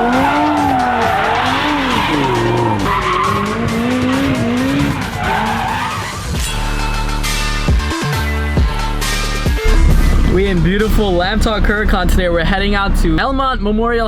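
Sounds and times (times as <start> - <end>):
car engine revving: 0.0 - 13.2
music with steady beat: 6.4 - 11.0.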